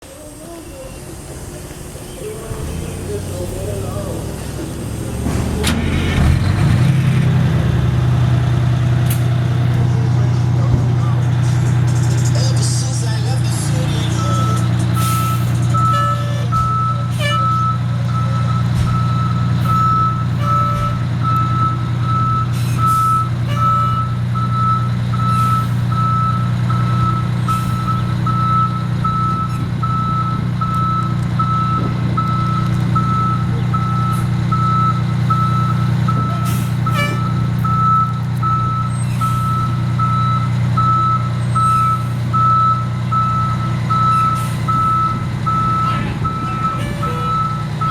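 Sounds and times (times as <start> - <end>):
truck engine running: 0.0 - 47.9
reversing alarm beeping: 11.0 - 47.9.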